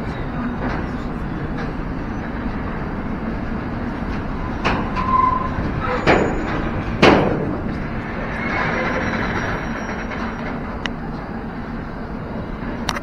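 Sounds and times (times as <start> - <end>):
train wheels rumbling on rails: 0.0 - 13.0
brief wheel squeal: 4.4 - 6.9, 8.1 - 10.6.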